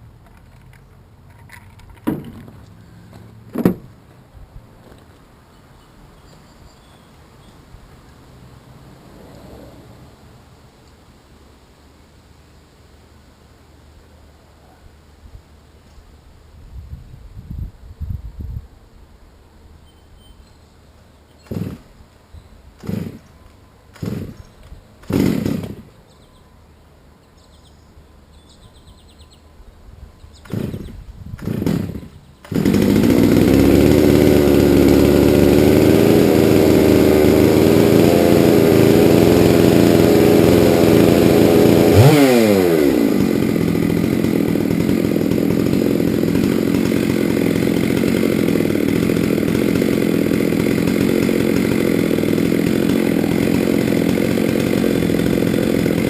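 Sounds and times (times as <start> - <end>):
chainsaw running at high revs: 21.5 - 21.9, 22.8 - 23.3, 24.0 - 24.4, 25.0 - 25.9, 30.4 - 56.0.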